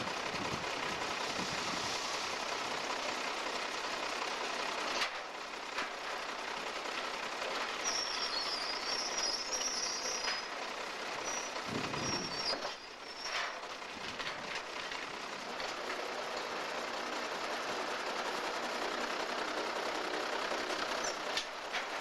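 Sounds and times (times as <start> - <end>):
locomotive engine running: 0.0 - 22.0
metallic squealing: 7.8 - 10.5, 11.2 - 13.6.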